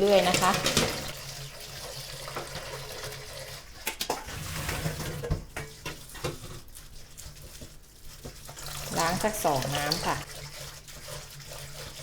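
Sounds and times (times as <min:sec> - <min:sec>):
water running and splashing: 0:06.0 - 0:12.0.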